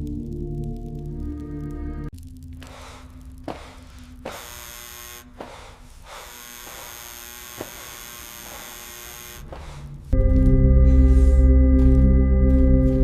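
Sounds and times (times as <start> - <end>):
steady electric buzz: 3.5 - 9.7.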